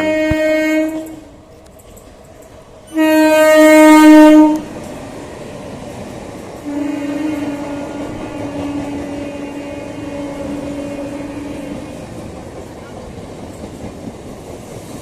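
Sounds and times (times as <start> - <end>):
quieter held horn note: 0.0 - 1.2
train horn blast: 0.0 - 1.4, 2.9 - 4.7, 6.6 - 12.0
train passing: 0.0 - 15.0.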